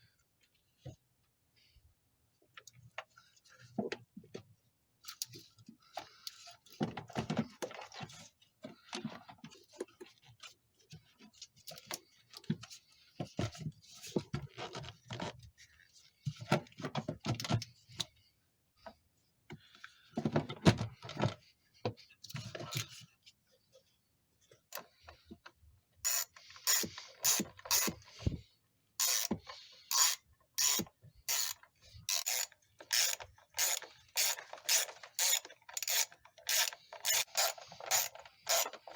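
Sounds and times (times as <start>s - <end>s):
ratchet wrench clicking: 26.1s - 28.0s, 29.0s - 29.3s, 29.9s - 38.8s.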